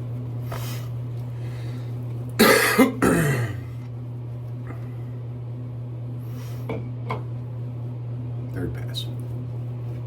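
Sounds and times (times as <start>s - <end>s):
steady low hum: 0.0s - 10.0s
man coughing: 2.4s - 3.8s.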